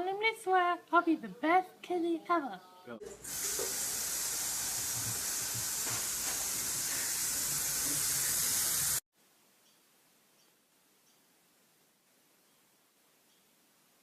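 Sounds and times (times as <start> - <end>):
steady high hiss: 3.0 - 14.0.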